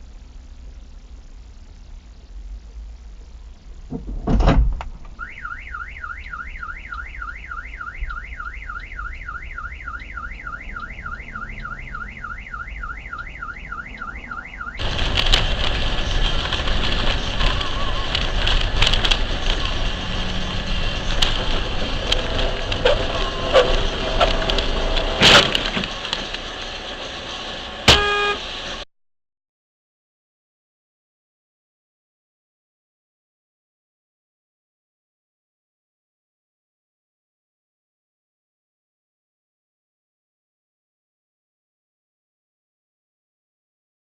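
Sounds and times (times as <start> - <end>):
steady rushing noise: 2.4 - 28.8
car alarm warbling: 5.2 - 15.0, 22.7 - 24.3, 27.9 - 28.5
scattered clicks: 14.8 - 19.9.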